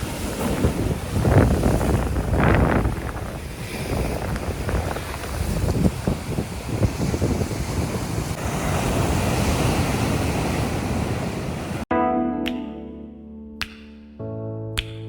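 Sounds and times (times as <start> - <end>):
sea surf breaking on beach: 0.0 - 11.8
wind buffeting microphone: 0.0 - 11.8
music with held notes: 11.9 - 15.0.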